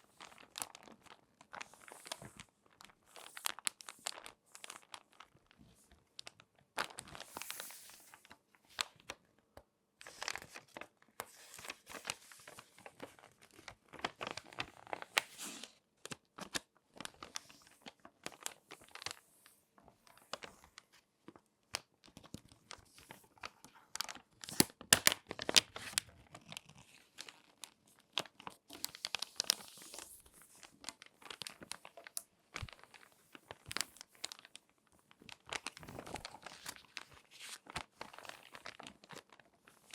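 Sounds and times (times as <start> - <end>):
magazine pages crinkling: 10.0 - 19.2, 21.8 - 39.9.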